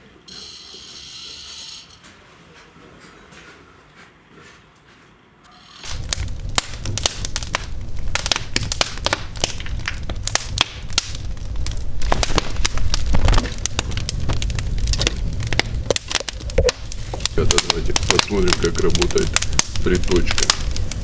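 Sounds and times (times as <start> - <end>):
low fire rumble: 5.8 - 21.0
wood fire crackling: 5.8 - 21.0.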